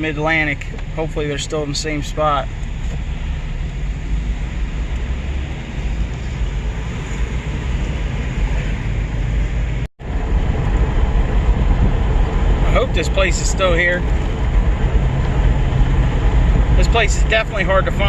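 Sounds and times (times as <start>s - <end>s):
vehicle road and engine rumble: 0.0s - 18.0s.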